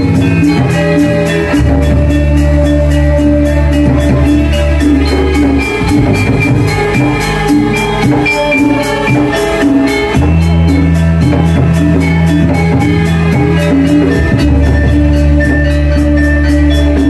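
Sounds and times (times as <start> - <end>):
metallophone melodies: 0.0 - 17.0.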